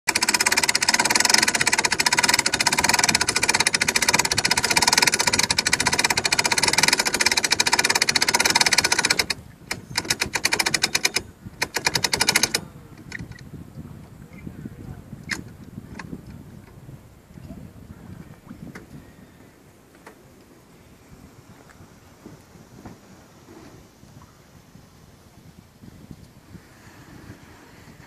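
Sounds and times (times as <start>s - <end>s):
rapid rattling clatter: 0.1s - 13.4s.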